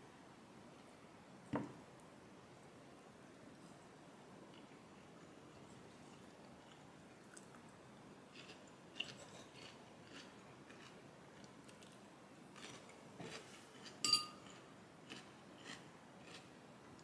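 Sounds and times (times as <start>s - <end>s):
chewing and crunching: 5.5s - 17.0s.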